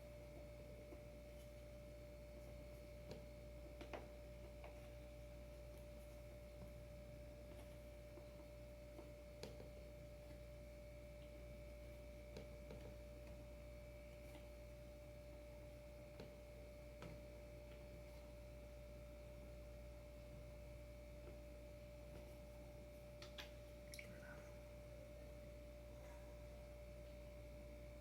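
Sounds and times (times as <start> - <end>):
faint whine: 0.0 - 28.0
low hum: 0.0 - 28.0.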